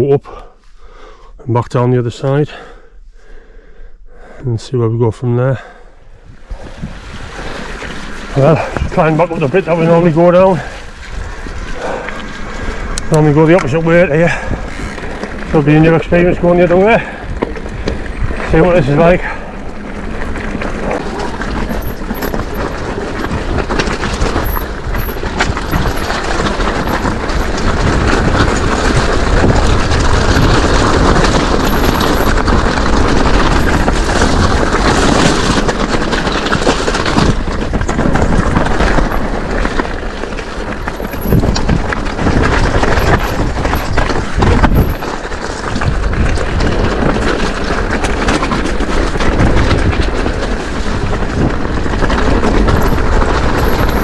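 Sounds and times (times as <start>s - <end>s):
bike rumbling on rough track: 5.1s - 54.0s
wind noise: 6.1s - 54.0s
bike knocks and rattles: 6.6s - 54.0s.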